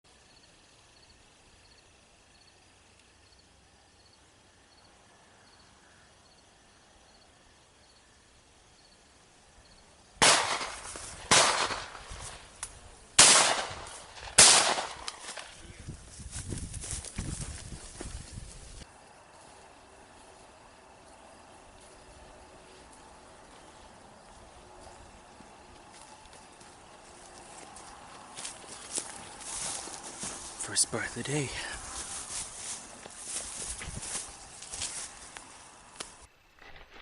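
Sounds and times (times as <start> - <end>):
shotgun shots: 10.2 - 12.4, 13.2 - 15.5.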